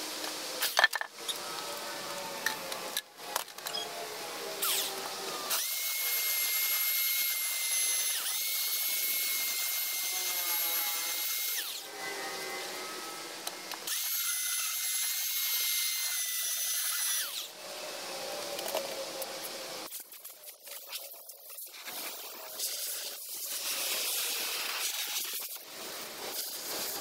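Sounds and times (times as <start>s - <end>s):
power sander motor whine: 3.8s - 19.6s.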